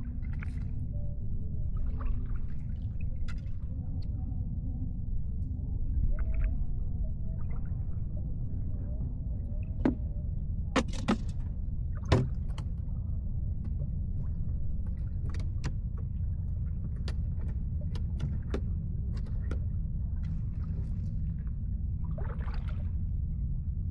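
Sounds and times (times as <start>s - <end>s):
sharp knocks and clicks: 10.8s - 11.4s.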